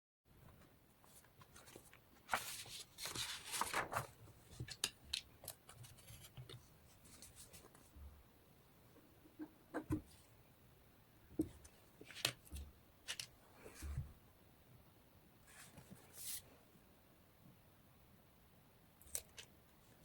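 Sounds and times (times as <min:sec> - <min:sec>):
paper rustling and crinkling: 0:01.0 - 0:07.9.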